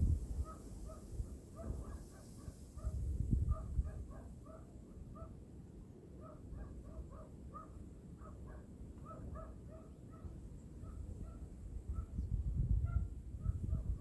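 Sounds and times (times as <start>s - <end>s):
low wind rumble: 0.0s - 2.0s, 2.8s - 4.2s, 11.2s - 14.0s.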